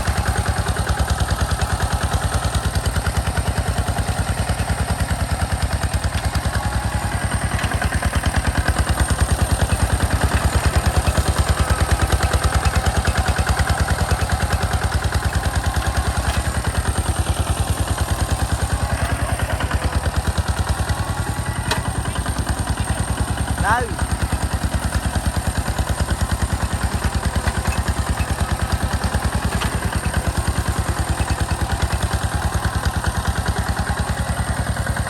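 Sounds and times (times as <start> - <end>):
tractor engine chugging: 0.0 - 35.0.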